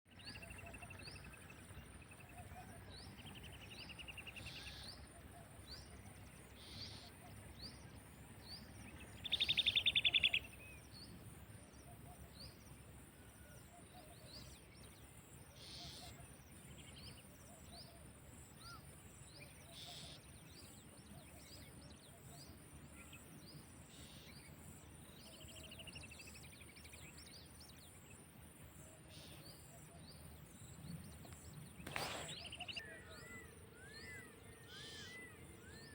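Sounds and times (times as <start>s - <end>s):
bird chirps: 0.1s - 11.2s, 29.0s - 35.9s.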